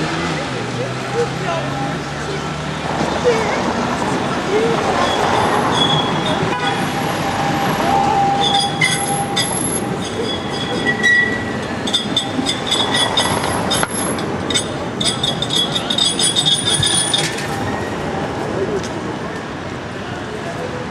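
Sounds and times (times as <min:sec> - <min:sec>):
rumbling street noise: 0:00.0 - 0:20.9
tram wheels squealing on rails: 0:02.8 - 0:18.9.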